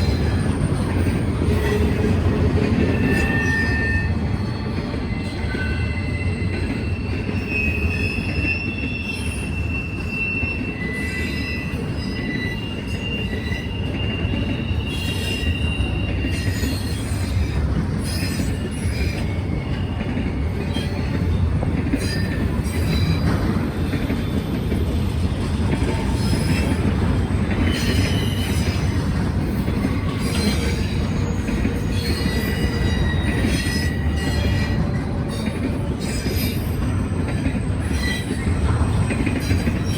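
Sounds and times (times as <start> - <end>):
freight train rumbling: 0.0 - 39.9
train wheels clicking: 0.0 - 39.9
wheel squeals: 0.0 - 39.9.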